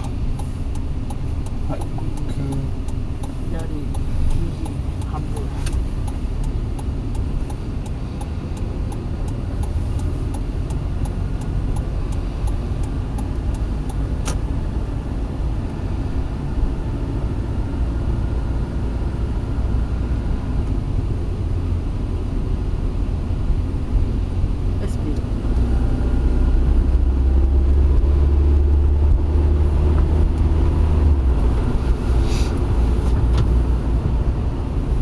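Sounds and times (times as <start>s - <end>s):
turn signal cancel click: 0.0s - 14.6s
car engine and road rumble: 0.0s - 35.0s
turn signal ticking: 0.0s - 35.0s.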